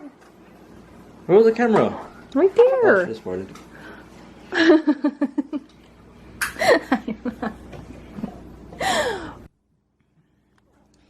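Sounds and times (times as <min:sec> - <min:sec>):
person laughing: 0:04.5 - 0:05.7, 0:06.6 - 0:09.4.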